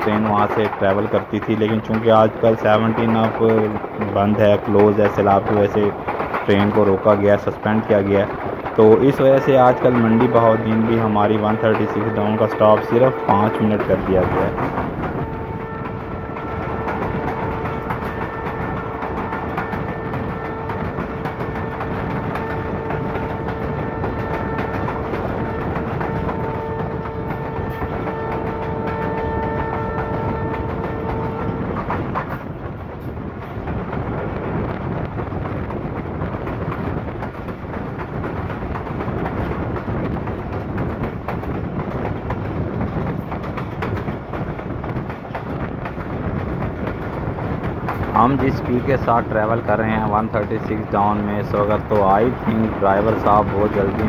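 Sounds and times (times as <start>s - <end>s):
train rumble and wheel clatter: 0.0s - 54.0s
locomotive horn long note: 15.2s - 31.8s.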